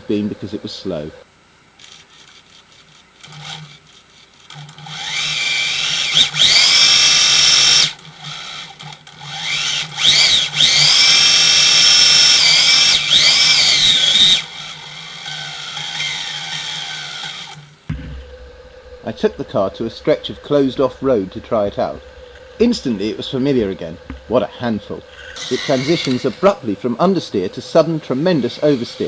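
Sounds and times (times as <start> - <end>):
toy car electric motor whining: 1.8 - 17.8, 25.1 - 29.0.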